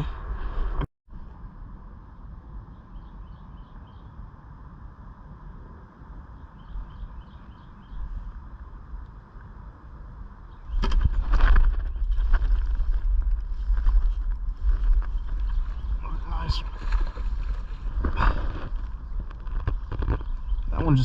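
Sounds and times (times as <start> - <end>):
low background rumble: 0.0 - 21.0
faint bird chirps: 2.6 - 4.2, 6.3 - 8.2.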